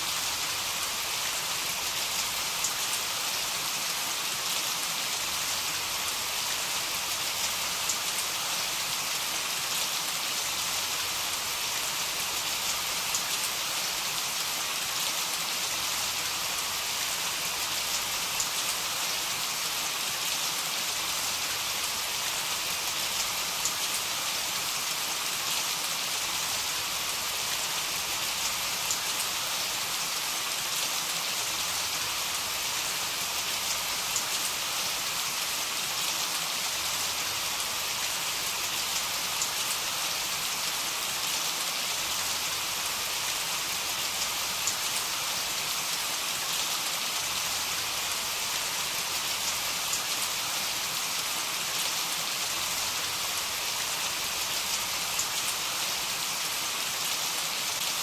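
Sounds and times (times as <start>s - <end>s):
fine patter of raindrops: 0.0s - 58.0s
heavy rain hissing: 0.0s - 58.0s.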